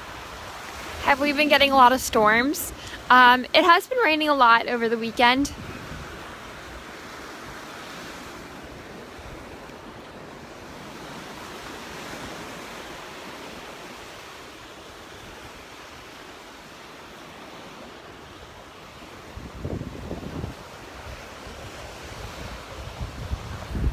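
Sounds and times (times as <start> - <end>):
wind buffeting microphone: 0.0 - 13.3, 18.9 - 23.9
surf washing onto beach: 0.0 - 23.9.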